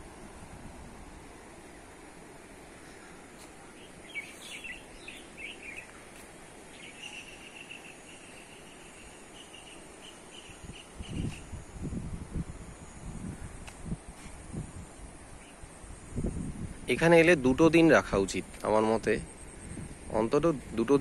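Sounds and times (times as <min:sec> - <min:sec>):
outdoor background hiss: 0:00.0 - 0:21.0
small birds chirping and trilling: 0:02.9 - 0:11.6.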